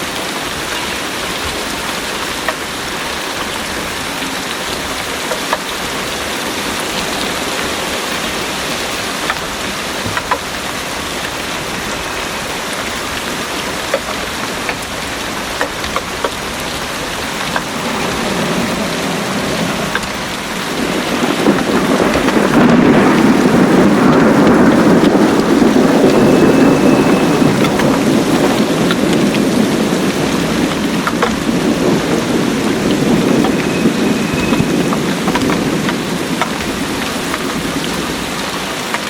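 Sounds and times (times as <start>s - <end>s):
rolling thunder rumble: 0.0s - 38.8s
heavy rain falling: 0.0s - 39.0s
water drips: 0.6s - 29.6s.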